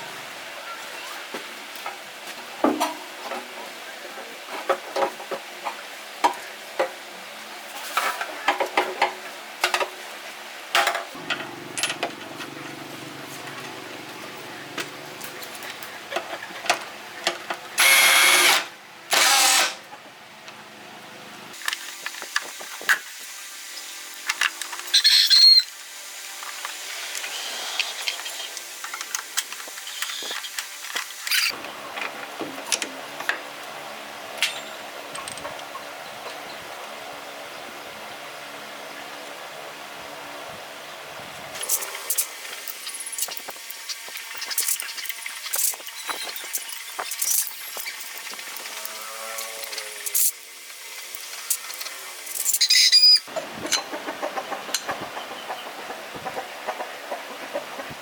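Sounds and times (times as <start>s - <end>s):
low steady hum: 11.2s - 16.3s
metal parts and tools clicking: 34.4s - 35.5s.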